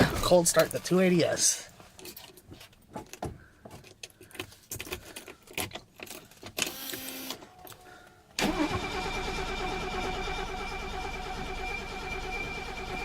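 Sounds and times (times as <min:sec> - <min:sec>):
starter motor cranking engine: 0:08.4 - 0:13.0.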